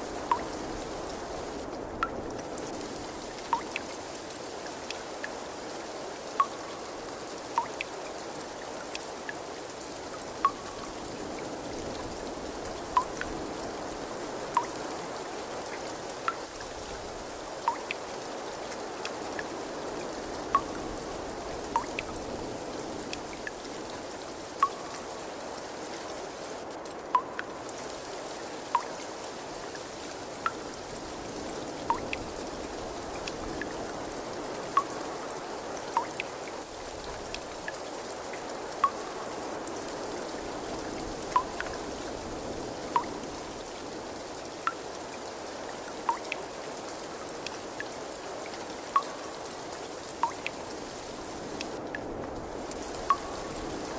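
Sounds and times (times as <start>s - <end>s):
water trickling: 0.0s - 53.9s
drops plinking into water: 0.3s - 0.5s, 3.5s - 3.8s, 7.6s - 7.9s, 17.7s - 18.0s, 27.2s - 27.5s, 31.9s - 32.2s, 46.1s - 46.4s, 49.0s - 49.2s, 50.2s - 50.5s, 53.1s - 53.4s.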